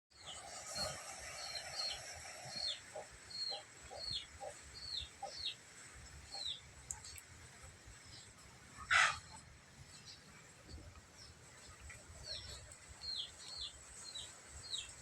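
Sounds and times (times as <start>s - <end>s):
chicken peeping: 1.8s - 5.6s.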